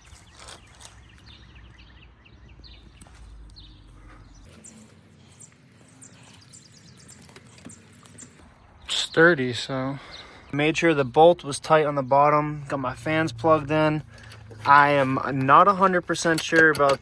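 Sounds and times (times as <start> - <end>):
birds chirping: 0.0 - 17.0
clicks and knocks of handled parts: 14.0 - 17.0.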